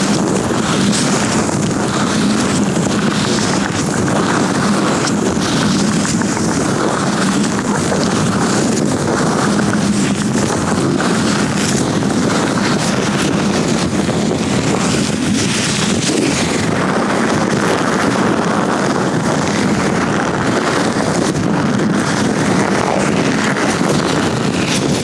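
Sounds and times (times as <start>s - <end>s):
latex gloves rubbing: 5.7s - 10.0s, 22.0s - 25.0s.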